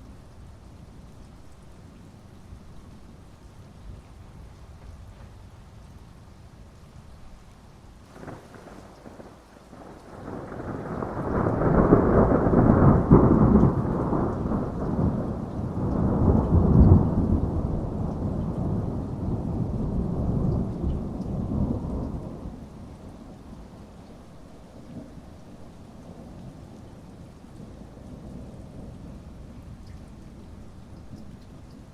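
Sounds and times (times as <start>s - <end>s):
heavy rain: 0.0s - 31.9s
thunder rolling: 8.1s - 22.5s.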